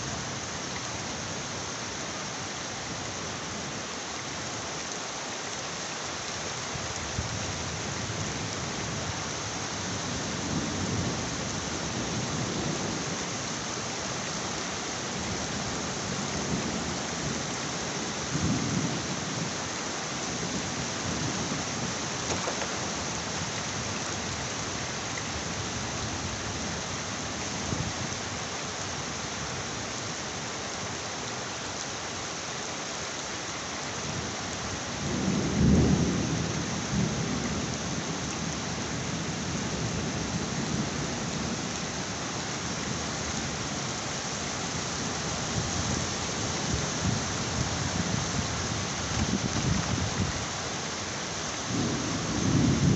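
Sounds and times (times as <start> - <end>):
heavy rain falling: 0.0 - 52.9
rolling thunder: 51.7 - 52.9.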